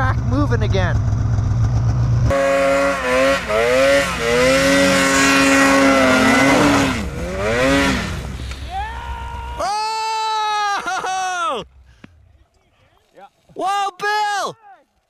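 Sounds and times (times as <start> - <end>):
snowmobile engine revving: 2.3 - 9.9.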